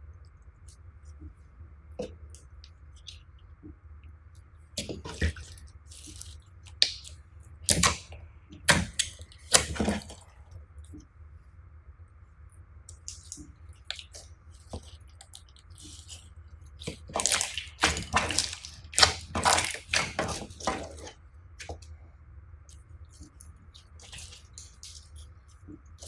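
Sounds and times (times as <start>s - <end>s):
slime squelching: 4.8s - 11.0s, 12.9s - 21.9s, 22.7s - 26.0s.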